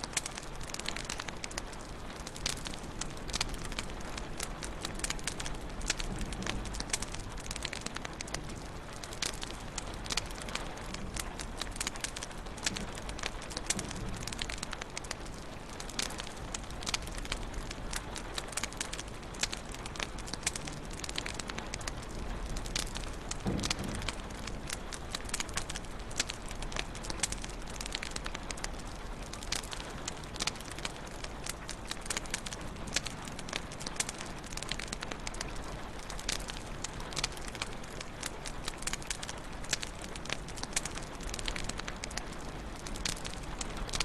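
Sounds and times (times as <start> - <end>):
low rumble of flames: 0.0 - 44.0
wood fire crackling: 0.0 - 44.0.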